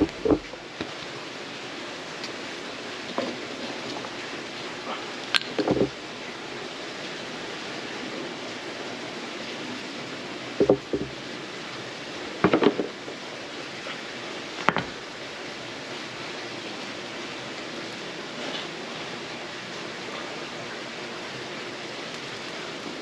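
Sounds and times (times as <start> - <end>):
fire popping: 0.0 - 1.2, 5.2 - 6.0, 10.6 - 11.4
tinder burning with hiss: 0.0 - 23.0.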